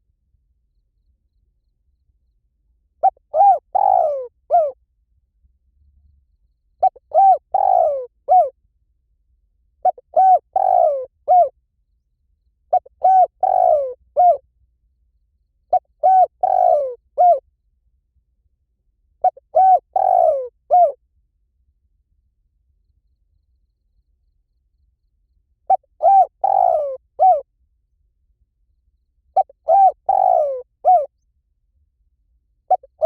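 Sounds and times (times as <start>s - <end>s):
dove cooing: 3.0s - 4.8s, 6.8s - 8.6s, 9.8s - 11.5s, 12.7s - 14.4s, 15.7s - 17.4s, 19.2s - 21.0s, 25.7s - 27.4s, 29.4s - 31.1s, 32.7s - 33.0s.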